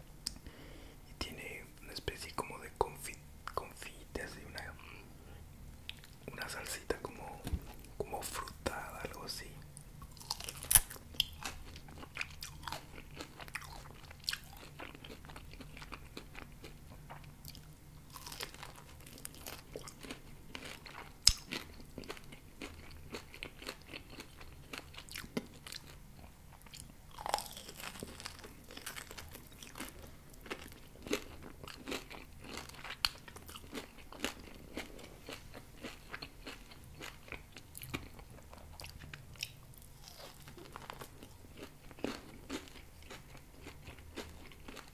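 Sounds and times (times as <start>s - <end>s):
chewing and biting meat: 10.0s - 44.9s
mouth clicks and crunches: 17.5s - 25.9s.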